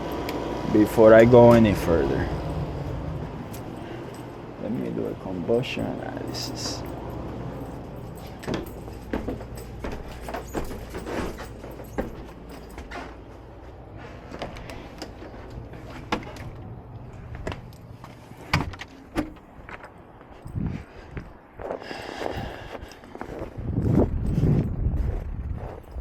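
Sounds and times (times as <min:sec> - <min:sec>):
tools clicking and rattling: 0:00.0 - 0:13.6
gas furnace humming: 0:00.0 - 0:19.5.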